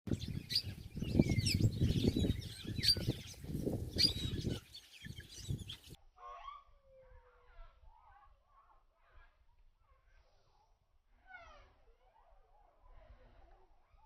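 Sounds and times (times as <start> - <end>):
birds chirping: 0.1 - 6.0.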